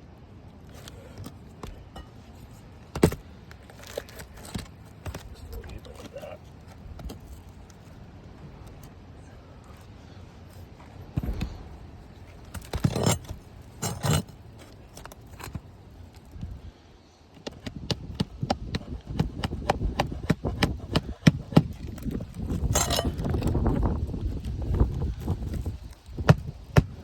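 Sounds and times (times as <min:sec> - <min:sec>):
rustling scrapes: 0:09.6 - 0:16.3
hammer tapping a nail: 0:17.4 - 0:21.8.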